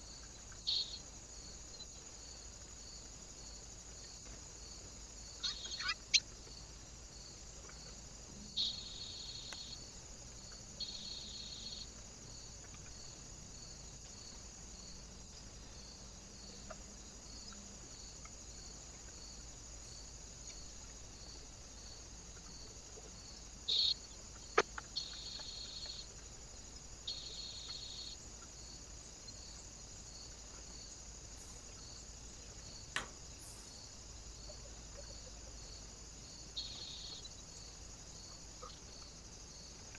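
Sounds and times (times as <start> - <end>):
small birds calling: 0.0 - 1.0, 5.3 - 6.6, 7.6 - 9.8, 10.4 - 12.0, 23.6 - 26.3, 27.0 - 28.5, 36.5 - 37.6, 38.4 - 39.2
steady high-pitched hiss: 0.0 - 39.9.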